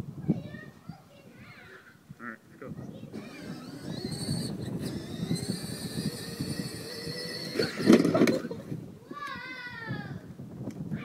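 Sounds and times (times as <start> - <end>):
plastic wheels rumbling on ground: 3.1 - 8.8
electric motor whine: 3.2 - 8.3.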